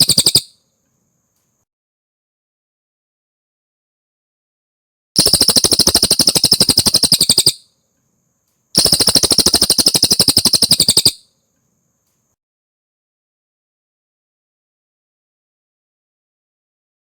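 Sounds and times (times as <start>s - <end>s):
bird trilling: 0.0s - 0.6s, 5.2s - 7.6s, 8.8s - 11.2s.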